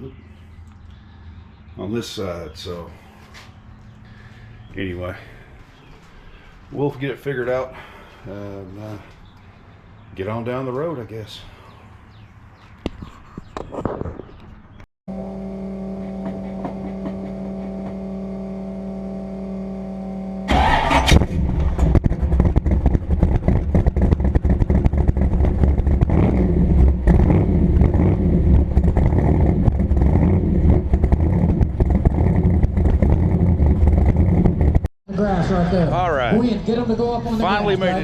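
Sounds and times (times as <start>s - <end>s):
engine droning hum: 0.0s - 12.6s, 14.6s - 38.0s
rough engine and road rumble: 8.1s - 38.0s.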